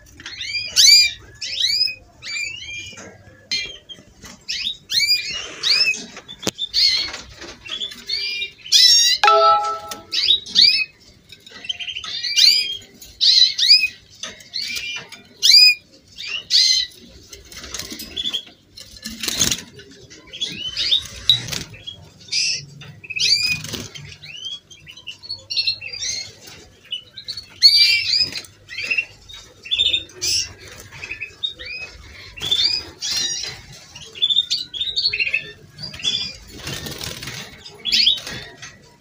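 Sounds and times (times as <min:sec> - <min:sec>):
canaries singing: 0:00.0 - 0:39.0.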